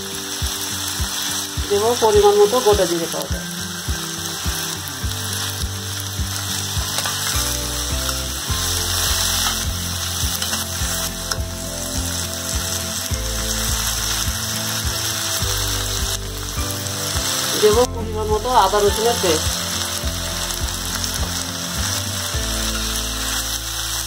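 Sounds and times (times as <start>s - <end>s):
sizzle of frying in oil: 0.0s - 24.0s
metal spatula scraping a pan: 6.9s - 7.4s, 8.9s - 11.4s.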